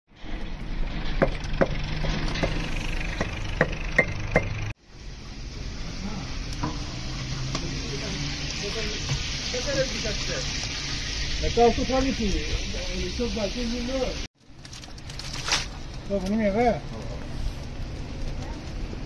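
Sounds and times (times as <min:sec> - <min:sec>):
food sizzling in a pot: 0:04.8 - 0:14.3.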